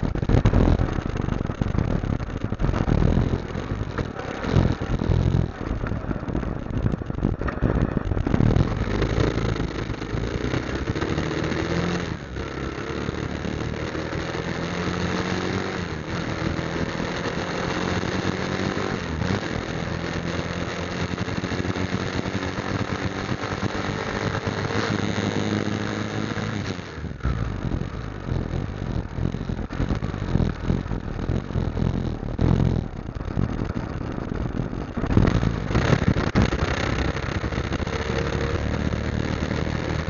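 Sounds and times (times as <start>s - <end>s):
irregular low rumble: 0.0s - 11.2s, 27.0s - 40.0s
motorcycle engine running: 0.0s - 40.0s.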